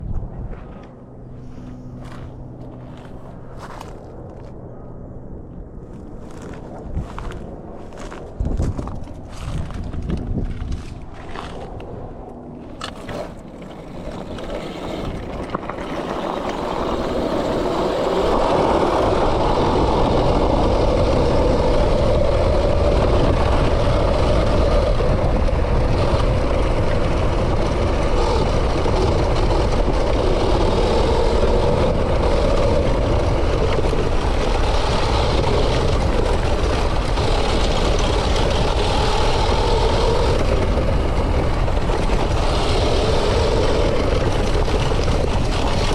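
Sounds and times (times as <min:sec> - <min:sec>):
dirt bike engine running: 0:00.5 - 0:04.6, 0:05.9 - 0:11.8, 0:12.6 - 0:45.9.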